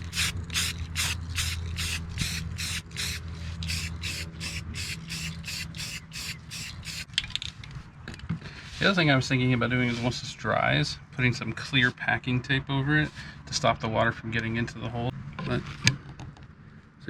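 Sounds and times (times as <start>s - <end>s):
aerosol can shaking: 0.0s - 7.1s.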